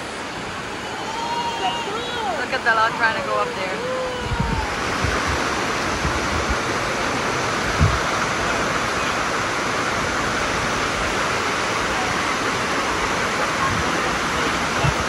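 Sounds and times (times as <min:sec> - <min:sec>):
waterfall rushing over rocks: 0:00.0 - 0:15.0
low thump: 0:07.7 - 0:08.1.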